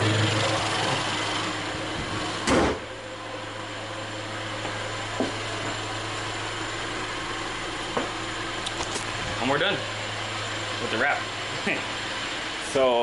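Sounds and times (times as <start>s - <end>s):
loud knock: 2.5s - 2.8s.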